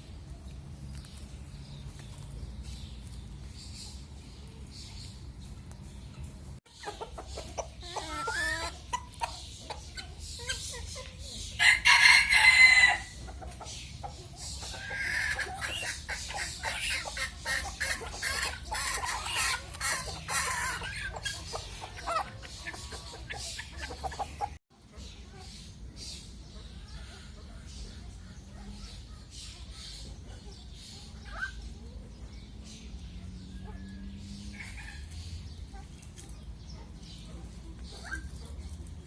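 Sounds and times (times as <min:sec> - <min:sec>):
chickens clucking: 0:00.0 - 0:39.0
rooster crowing: 0:11.6 - 0:13.1.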